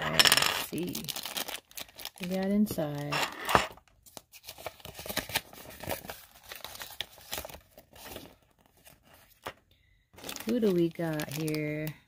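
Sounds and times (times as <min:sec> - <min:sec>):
packaging cracking: 0:00.7 - 0:02.4, 0:10.2 - 0:12.0
packaging tearing and rustling: 0:00.7 - 0:09.5, 0:10.2 - 0:11.9.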